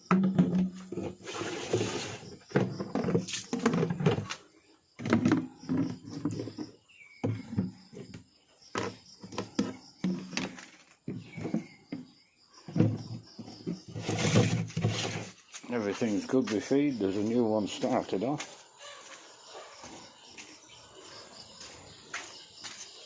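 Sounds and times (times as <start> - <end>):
farm animals calling: 15.8 - 22.8.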